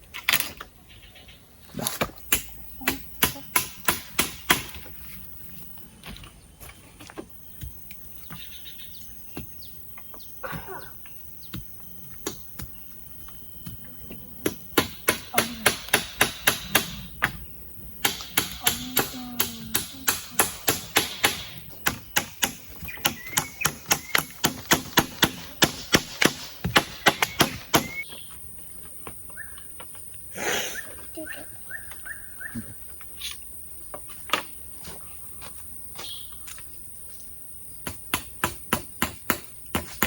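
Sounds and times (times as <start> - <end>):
tool striking wood: 2.3 - 4.9, 14.4 - 17.4, 18.0 - 28.0, 37.8 - 40.0.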